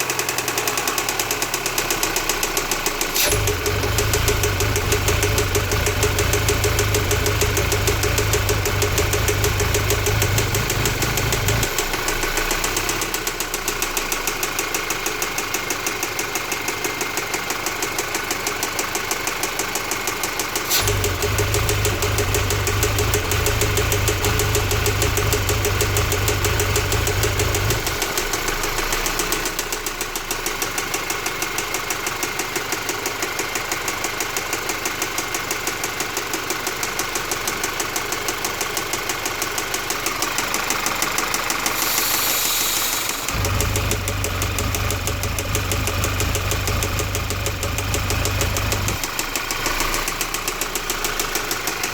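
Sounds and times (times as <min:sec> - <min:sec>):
engine knocking: 0:00.0 - 0:51.9
low hum: 0:03.2 - 0:13.0, 0:20.7 - 0:28.7.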